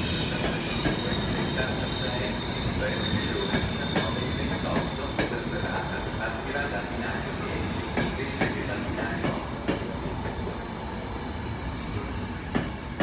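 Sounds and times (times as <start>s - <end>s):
high wheel squeal: 0.0s - 9.7s.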